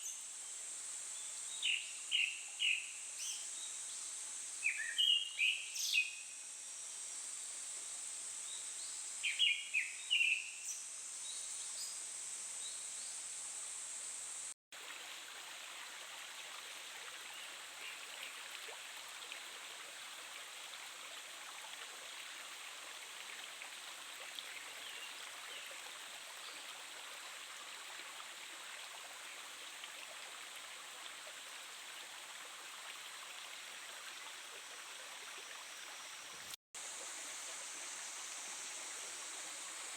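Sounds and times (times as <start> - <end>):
steady high hiss: 0.0 - 14.6, 35.8 - 39.9.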